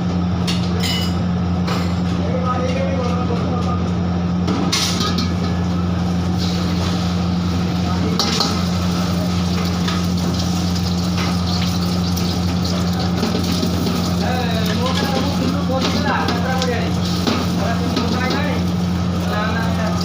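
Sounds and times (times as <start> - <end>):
steady low hum: 0.0 - 20.0
food sizzling: 5.3 - 20.0.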